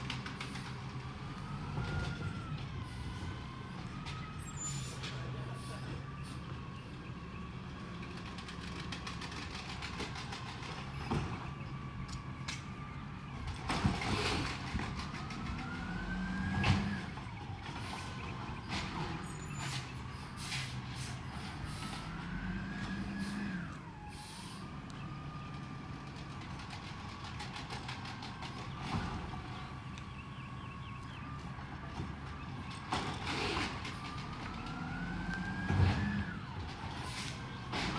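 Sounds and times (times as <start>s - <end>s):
diesel truck engine revving: 13.2s - 37.9s.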